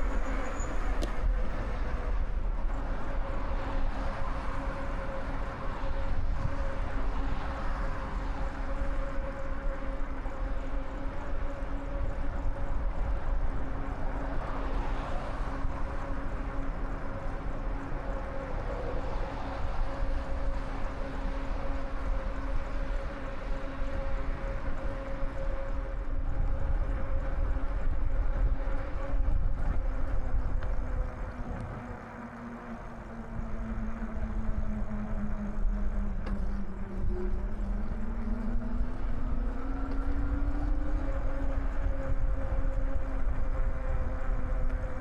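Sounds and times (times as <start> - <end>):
road noise: 0.0 - 45.0
wind rumbling on microphone: 0.0 - 45.0
steady hum: 15.6 - 45.0.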